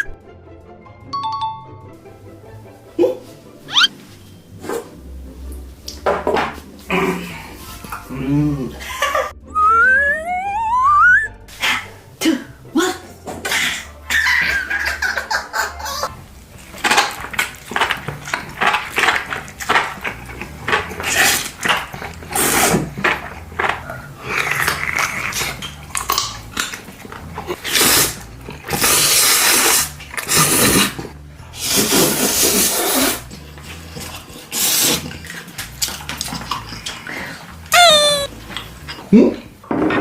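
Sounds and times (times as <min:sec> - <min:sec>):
crunching and chewing: 0:16.1 - 0:37.7.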